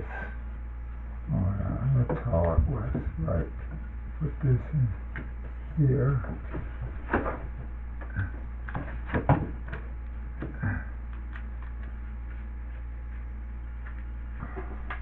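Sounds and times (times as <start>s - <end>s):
steady low hum: 0.0s - 15.0s
drywall knocking and scraping: 6.2s - 10.8s.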